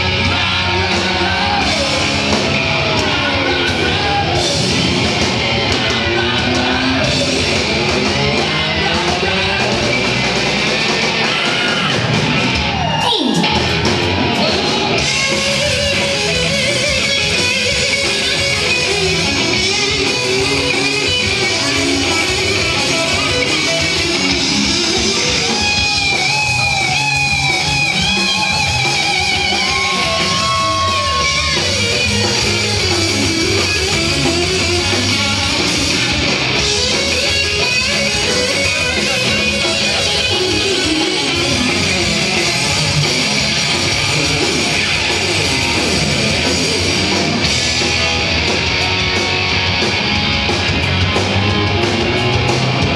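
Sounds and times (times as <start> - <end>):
hard rock band playing: 0.0 - 52.9
lead guitar bending notes: 13.4 - 52.9.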